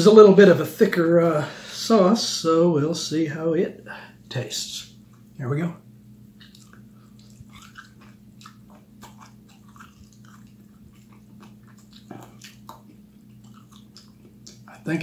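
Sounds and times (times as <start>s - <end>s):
person chewing chicken wing: 6.3s - 14.9s.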